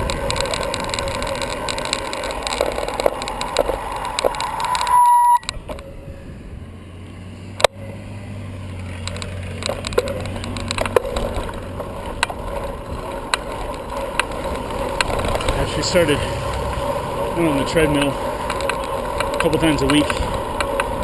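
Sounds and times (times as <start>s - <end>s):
bicycle rattling over road: 0.0s - 21.0s
brief steady tone: 4.4s - 5.6s.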